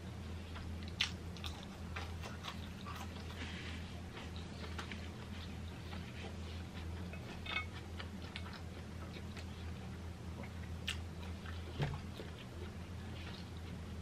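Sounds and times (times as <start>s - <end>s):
steady low hum: 0.0s - 14.0s
chewing: 0.5s - 13.8s.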